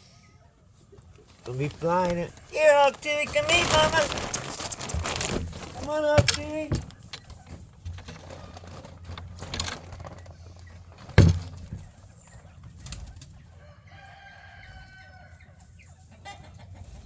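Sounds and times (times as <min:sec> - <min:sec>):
chickens clucking: 0:00.0 - 0:17.0
long drawn-out chicken call: 0:13.4 - 0:17.0.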